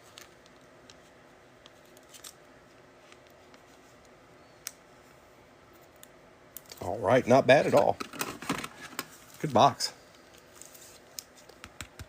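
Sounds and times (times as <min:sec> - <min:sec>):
trading cards being shuffled: 0:00.0 - 0:02.4.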